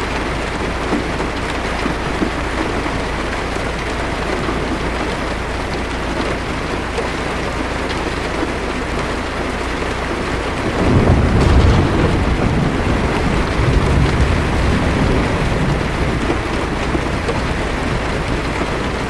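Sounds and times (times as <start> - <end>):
heavy rain on windshield: 0.0 - 19.0
low thunder rumble: 9.6 - 19.0.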